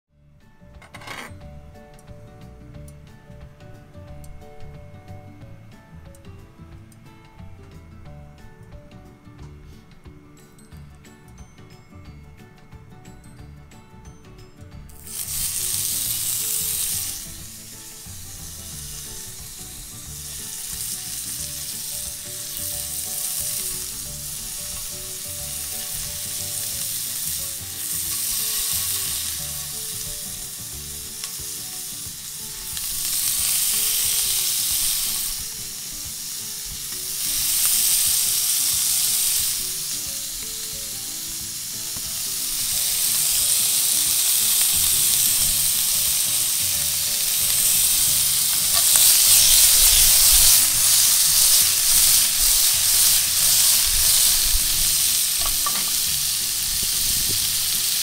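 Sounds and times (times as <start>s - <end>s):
beef sizzling in a frying pan: 14.8s - 58.0s.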